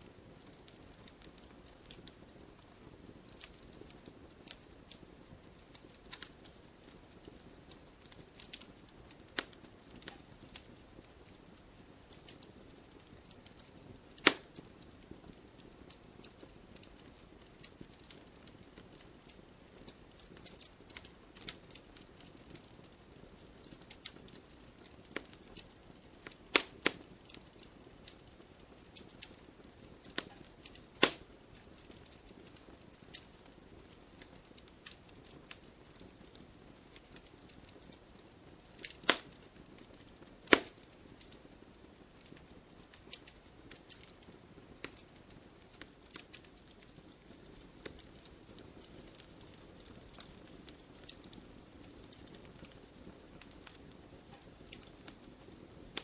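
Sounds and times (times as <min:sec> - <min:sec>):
campfire wood crackling: 0:00.0 - 0:56.0.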